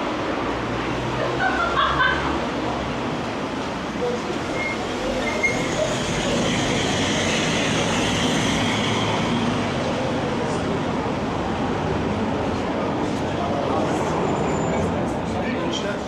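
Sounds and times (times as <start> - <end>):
tram rolling on rails: 0.0 - 16.0
wheels screeching: 4.0 - 10.6.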